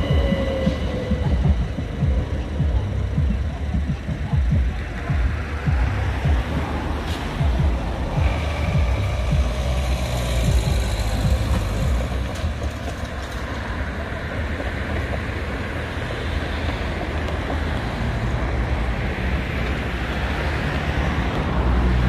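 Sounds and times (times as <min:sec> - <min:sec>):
cars driving over level crossing: 0:00.0 - 0:22.0
electric train rumbling: 0:00.0 - 0:22.0.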